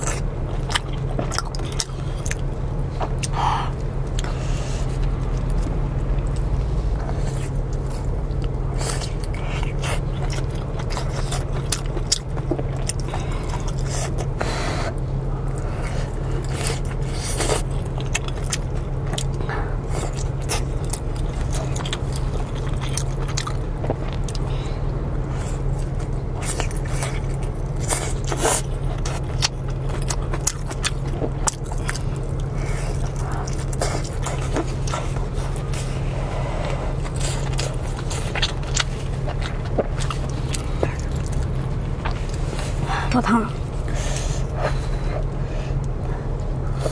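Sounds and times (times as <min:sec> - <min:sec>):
chewing and biting: 0:00.0 - 0:46.9
steady low hum: 0:00.0 - 0:46.9.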